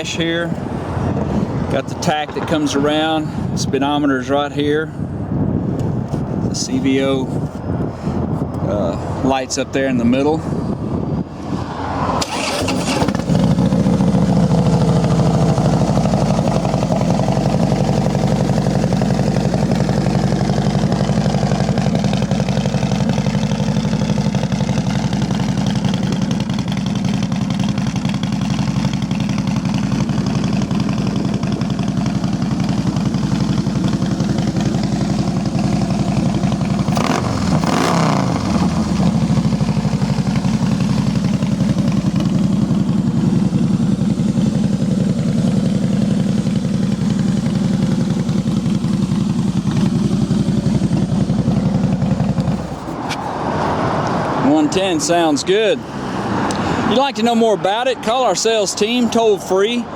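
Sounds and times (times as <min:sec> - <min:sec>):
motorcycle engine starting: 0:10.8 - 0:59.9
motorcycle engine idling: 0:12.3 - 0:59.9.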